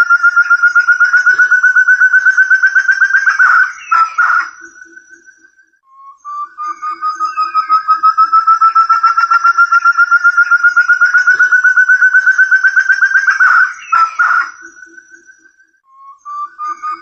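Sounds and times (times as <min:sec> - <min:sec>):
quail whistled call: 0:00.0 - 0:17.0.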